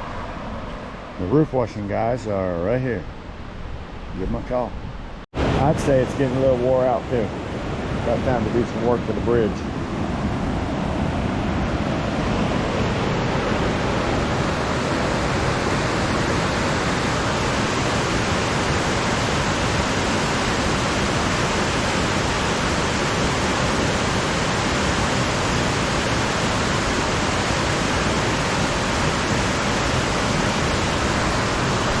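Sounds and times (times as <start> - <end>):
river rushing over rocks: 10.4 - 32.0.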